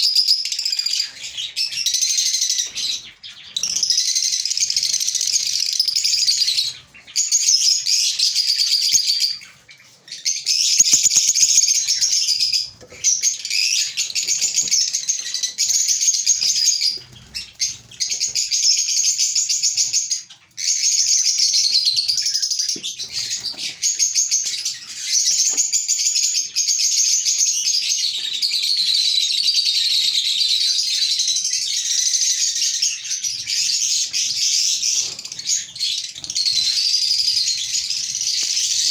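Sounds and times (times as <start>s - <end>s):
lovebirds chattering: 0.5s - 25.9s.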